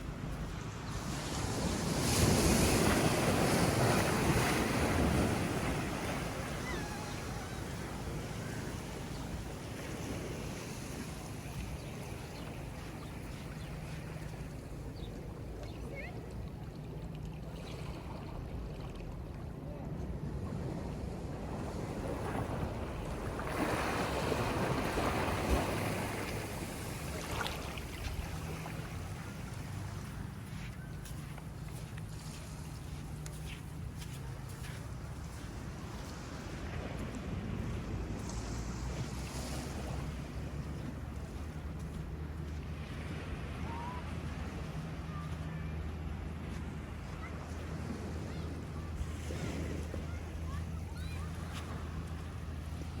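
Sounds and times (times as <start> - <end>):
wind rumble on microphone: 0.0 - 53.0
ocean wave breaking on beach: 0.7 - 14.4, 20.8 - 31.2, 31.8 - 41.6.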